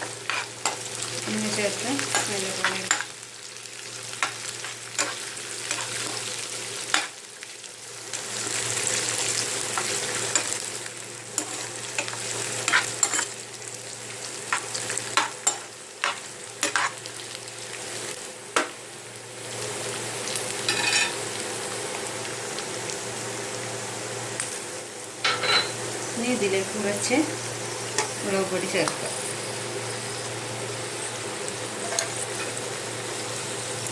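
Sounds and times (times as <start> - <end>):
spoon scraping a pan: 0.0 - 0.9, 2.0 - 3.1, 4.2 - 6.3, 9.7 - 10.7, 11.4 - 13.4, 14.5 - 17.0, 20.7 - 21.2, 25.3 - 25.8, 31.8 - 32.6
food sizzling in hot oil: 0.0 - 33.9.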